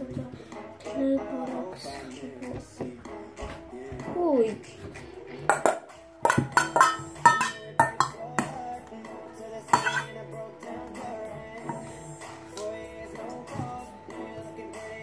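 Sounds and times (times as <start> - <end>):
background music: 0.0 - 15.0
utensil knocking against mixing bowl: 5.5 - 8.7, 9.8 - 10.1.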